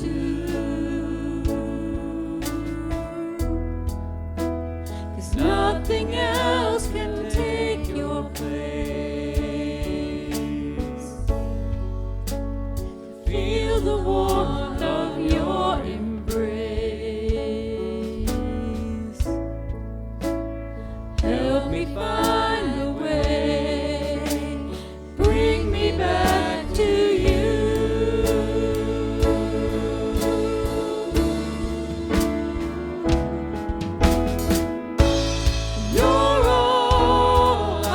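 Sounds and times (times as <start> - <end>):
band with bass and drums: 0.0 - 37.9
voices singing worship music: 0.0 - 37.9
instrumental accompaniment: 19.2 - 37.9.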